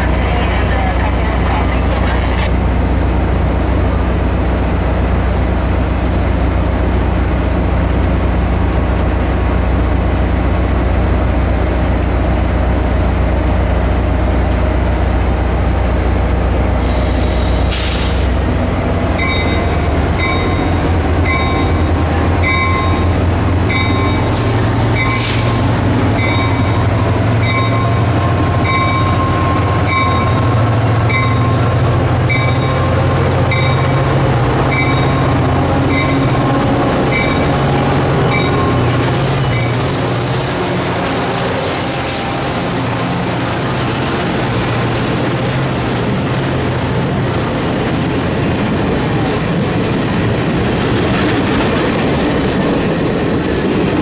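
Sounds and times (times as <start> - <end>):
locomotive engine drone: 0.0 - 54.0
short hisses: 16.9 - 18.3
bell ringing: 19.2 - 25.3, 26.2 - 37.6, 38.3 - 39.8.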